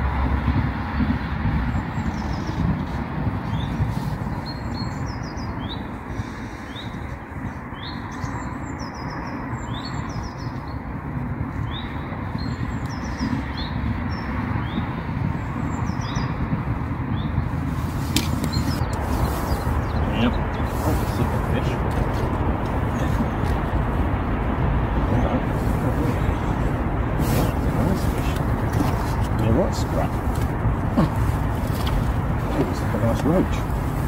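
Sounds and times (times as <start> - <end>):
rushing background noise: 0.0 - 34.0
small bird chirping: 7.7 - 10.8, 18.2 - 21.6.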